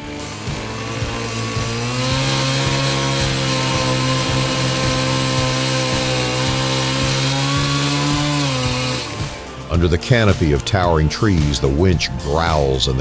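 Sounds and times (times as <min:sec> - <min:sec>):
small engine running at high revs: 0:00.0 - 0:09.7.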